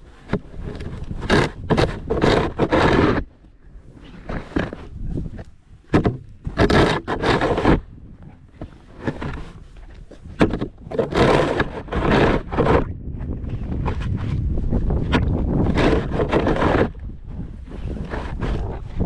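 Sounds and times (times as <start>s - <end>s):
snow shovel scraping: 0.3s - 3.2s, 6.5s - 7.8s, 8.6s - 12.9s, 15.5s - 17.0s, 17.6s - 19.0s.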